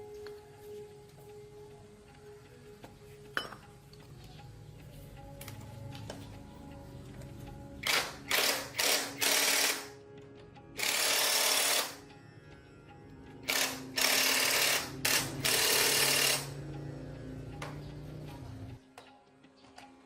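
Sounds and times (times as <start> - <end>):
background music: 0.0 - 20.0
power tool bursts: 7.8 - 9.9, 10.8 - 12.0, 13.5 - 16.6.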